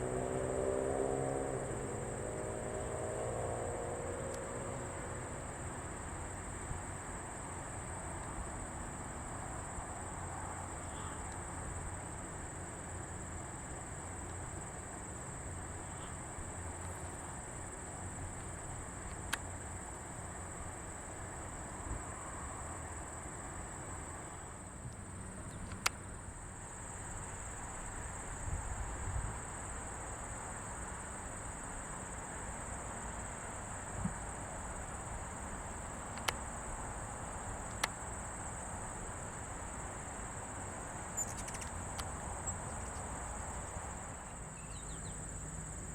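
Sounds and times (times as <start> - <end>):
insect chorus trilling: 0.0 - 45.9
sharp clicks: 25.4 - 26.0, 35.9 - 36.5, 37.6 - 38.0, 41.2 - 42.2.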